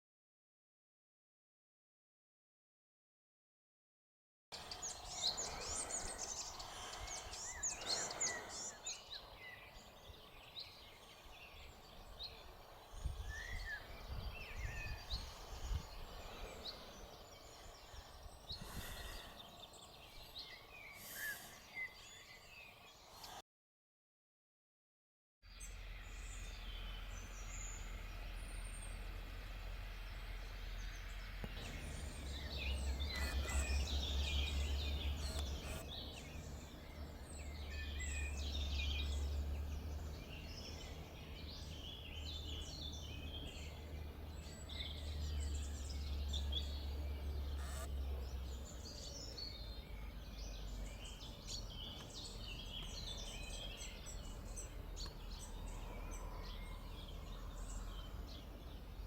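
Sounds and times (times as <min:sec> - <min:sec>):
songbirds chirping and trilling: 0:04.6 - 0:23.4, 0:25.5 - 0:59.0
low rumble: 0:25.6 - 0:41.6.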